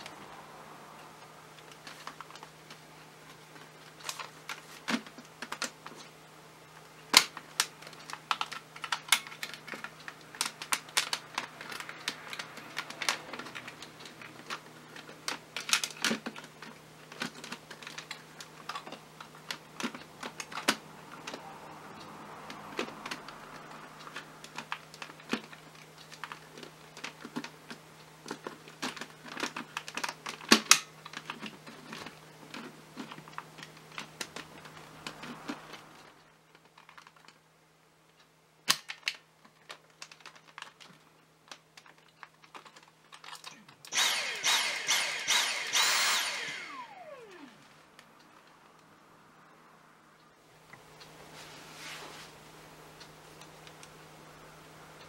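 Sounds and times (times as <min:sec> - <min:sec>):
faint low hum: 0:39.3 - 0:55.0.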